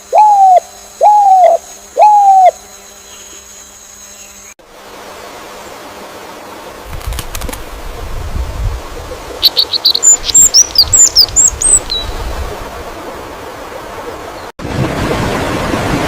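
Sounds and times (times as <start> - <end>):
songbird singing: 0.0 - 4.6, 9.0 - 12.3.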